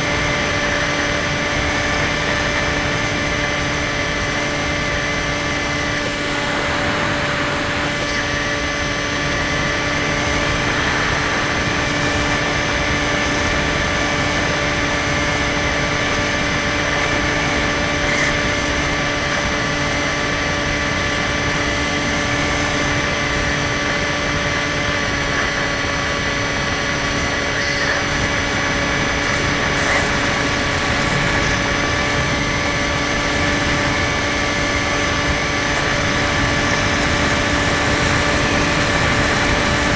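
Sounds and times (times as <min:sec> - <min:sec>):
electric motor whine: 0:00.0 - 0:39.9.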